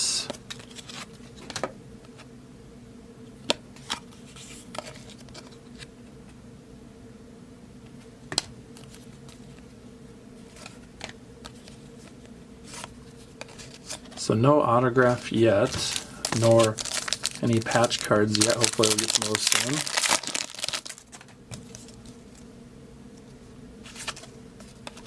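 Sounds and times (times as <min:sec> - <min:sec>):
steady low hum: 0:00.0 - 0:25.0
cards clicking and tapping: 0:15.6 - 0:21.8.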